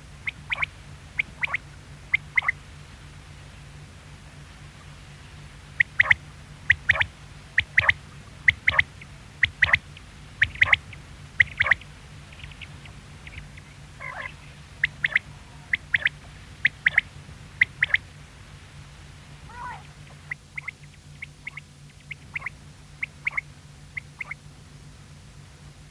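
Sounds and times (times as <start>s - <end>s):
lower warbled call: 0.1s - 2.6s, 5.8s - 18.1s, 19.5s - 24.4s
quail calling: 0.2s - 2.6s, 5.8s - 18.1s, 19.5s - 24.4s.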